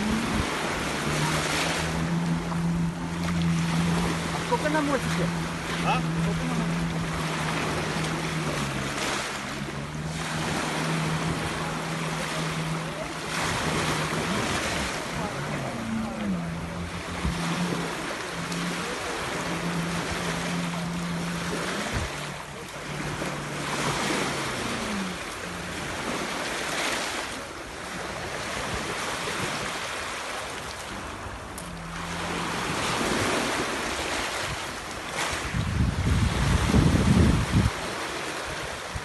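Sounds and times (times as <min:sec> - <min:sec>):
low steady hum: 0:00.0 - 0:26.1
wind buffeting microphone: 0:00.0 - 0:26.5, 0:28.0 - 0:39.0
sea waves washing onto shore: 0:00.0 - 0:39.0.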